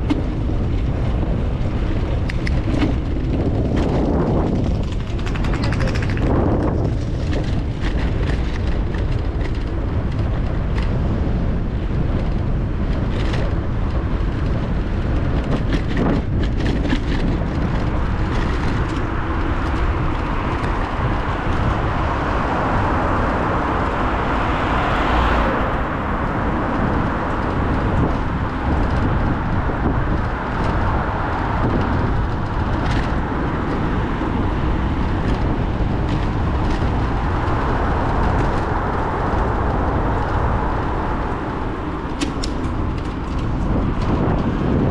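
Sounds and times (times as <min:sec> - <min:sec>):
wind rushing over microphone: 0:00.0 - 0:44.9
sharp clicks: 0:04.8 - 0:06.4
vehicle passing: 0:17.5 - 0:44.9.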